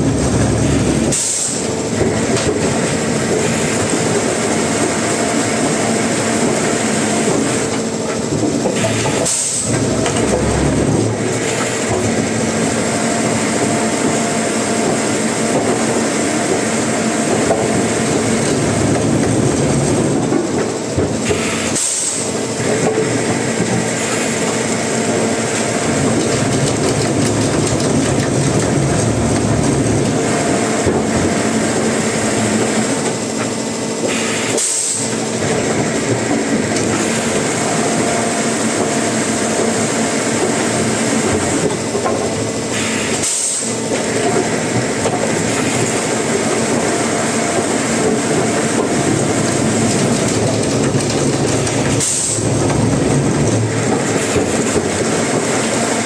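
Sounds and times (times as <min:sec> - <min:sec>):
sawmill machinery running: 0:00.0 - 0:56.0.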